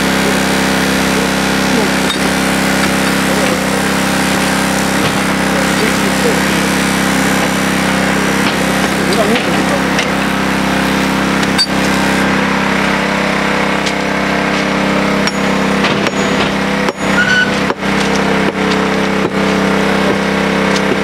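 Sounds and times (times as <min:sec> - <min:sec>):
small engine running: 0:00.0 - 0:21.0
knocks and clinks: 0:15.2 - 0:18.9.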